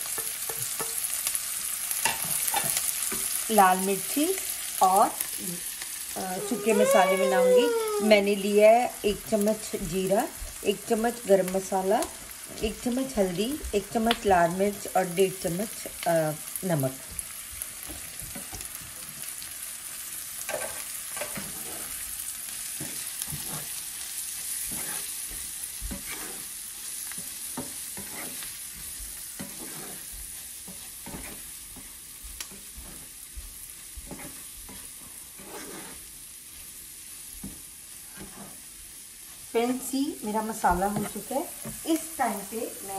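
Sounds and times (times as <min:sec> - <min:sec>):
onion sizzling in hot oil: 0:00.0 - 0:42.9
wooden spatula scraping a pan: 0:20.5 - 0:42.6.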